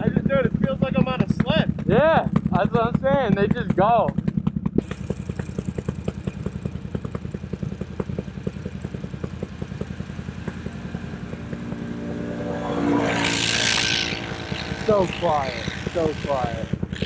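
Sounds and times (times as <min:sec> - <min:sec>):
atv engine revving: 0:00.0 - 0:17.0.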